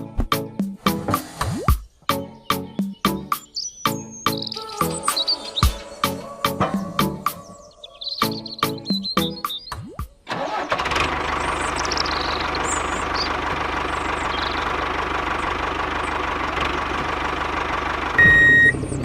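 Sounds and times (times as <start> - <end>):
engine idling with low knocking: 10.8 - 19.0.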